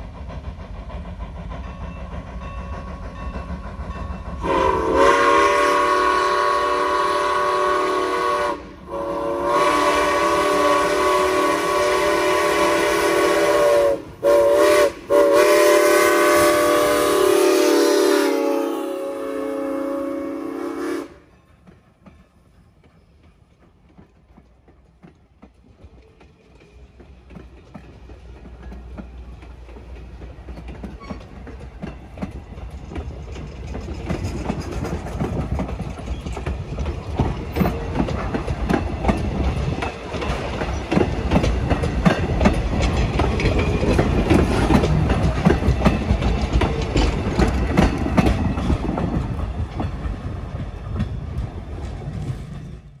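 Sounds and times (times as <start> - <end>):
steam train wheels clanking: 0.0 - 53.0.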